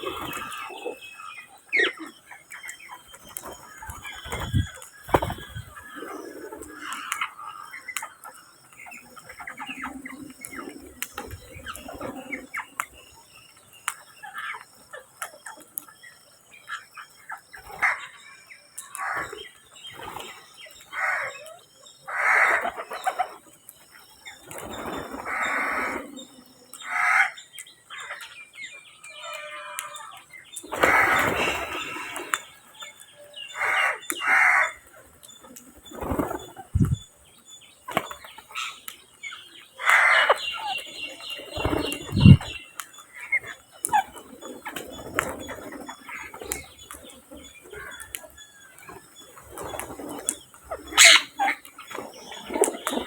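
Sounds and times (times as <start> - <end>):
harsh bird calls: 0.0 - 14.6, 24.2 - 53.0.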